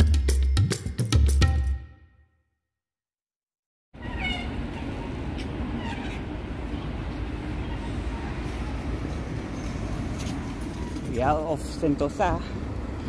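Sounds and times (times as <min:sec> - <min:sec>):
road and wind noise: 0:04.0 - 0:13.0.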